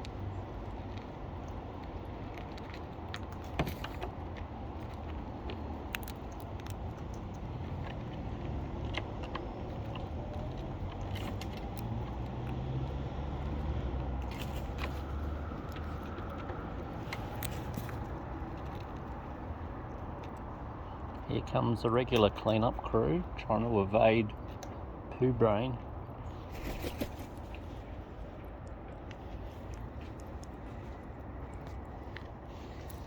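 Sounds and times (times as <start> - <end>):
parrot cracking seeds: 4.8 - 7.0.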